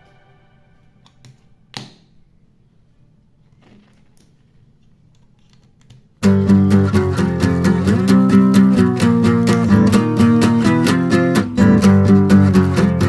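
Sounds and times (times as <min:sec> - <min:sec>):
strummed acoustic guitar music: 0:06.2 - 0:13.0.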